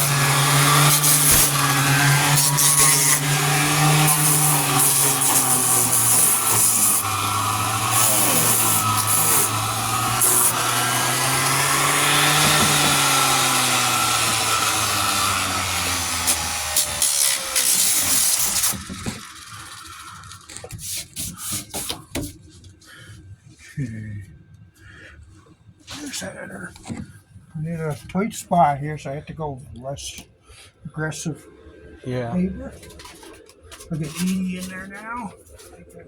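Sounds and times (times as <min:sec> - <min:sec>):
power sander sanding: 0:00.0 - 0:22.0.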